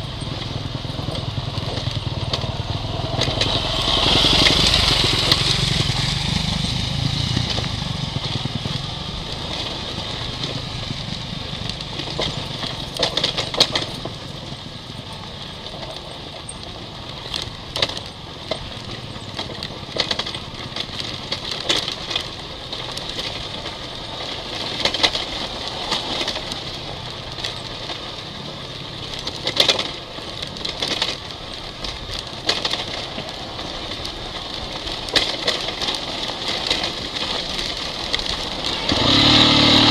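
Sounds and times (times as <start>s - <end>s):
dirt bike engine running: 0.0s - 39.9s
sharp knocks and clatter: 0.2s - 10.7s, 11.6s - 14.3s.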